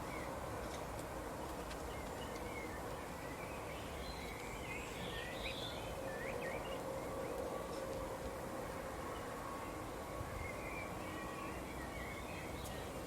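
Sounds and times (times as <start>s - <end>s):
outdoor background hiss: 0.0s - 13.0s
small birds chirping: 1.4s - 6.8s, 10.3s - 13.0s.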